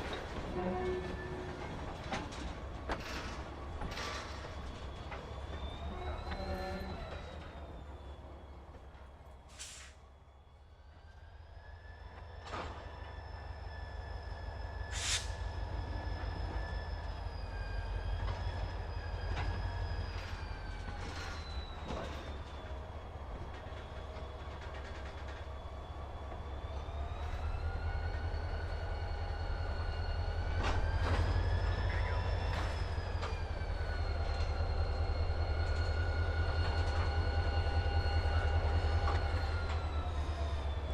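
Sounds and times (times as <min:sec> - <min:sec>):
diesel locomotive rumble: 0:00.0 - 0:40.9
wheel flange squeal: 0:12.8 - 0:22.8.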